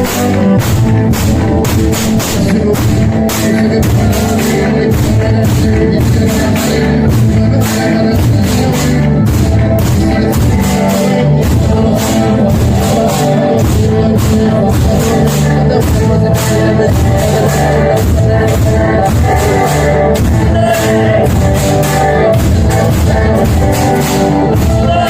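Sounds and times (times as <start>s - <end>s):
barrels and tubs struck in a beat: 0.0s - 25.0s
people singing: 0.0s - 25.0s.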